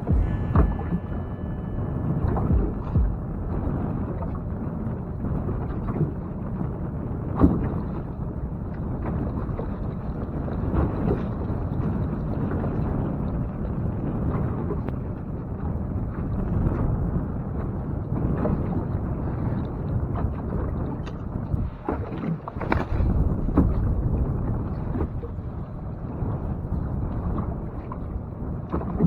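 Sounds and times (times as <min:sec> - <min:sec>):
wind rumbling on microphone: 0:00.0 - 0:29.0.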